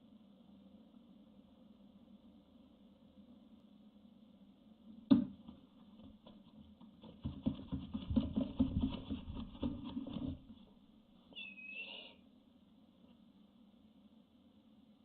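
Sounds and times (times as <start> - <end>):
knock on wooden floor: 5.1 - 10.5
owl chicks thumping and scratching: 5.1 - 10.8
owl call: 11.3 - 12.2.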